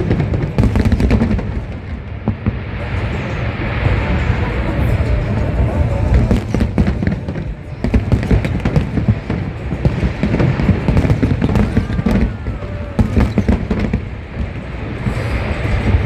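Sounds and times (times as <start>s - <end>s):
fireworks bangs and crackles: 0.0s - 16.0s
low rumble: 0.0s - 16.0s.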